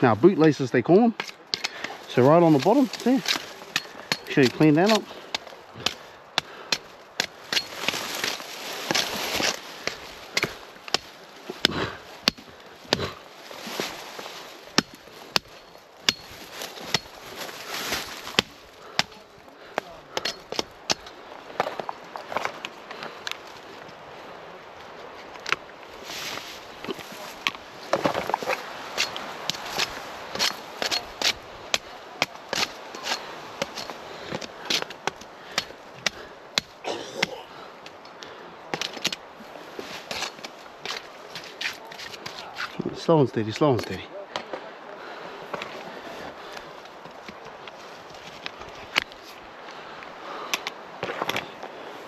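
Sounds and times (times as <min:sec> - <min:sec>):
branches rustling: 0:00.0 - 0:52.0
pruning shears snipping: 0:01.0 - 0:13.2, 0:14.7 - 0:19.2, 0:26.8 - 0:37.4.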